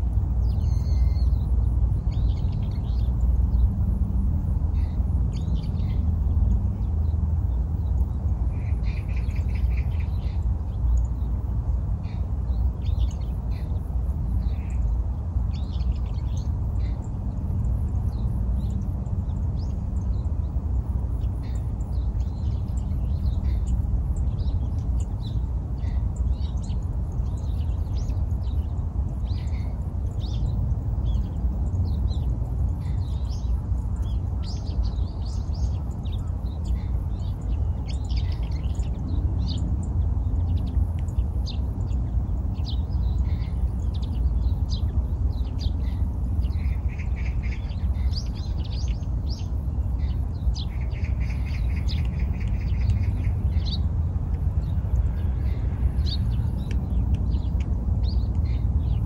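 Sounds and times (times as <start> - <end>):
steady low rumble: 0.0 - 59.0
bird chirps and calls: 0.4 - 3.8, 21.1 - 53.9.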